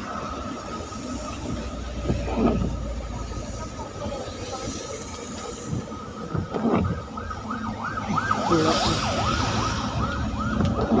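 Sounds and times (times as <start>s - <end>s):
road traffic rumble: 0.0s - 11.0s
vehicle siren sweeping: 5.8s - 11.0s.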